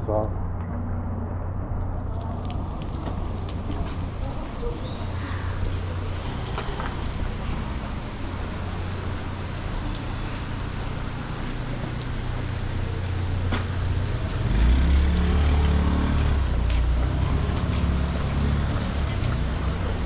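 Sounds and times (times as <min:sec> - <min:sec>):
street traffic: 0:00.0 - 0:20.0
vehicle engine rumbling: 0:00.0 - 0:20.0.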